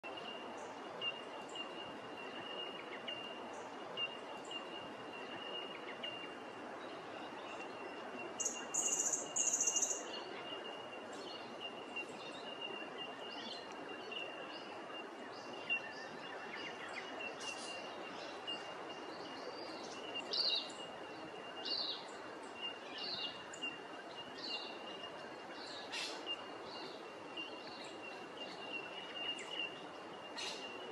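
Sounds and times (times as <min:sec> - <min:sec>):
steady outdoor hiss: 0:00.0 - 0:30.9
wild birds chirping and calling: 0:25.6 - 0:30.9.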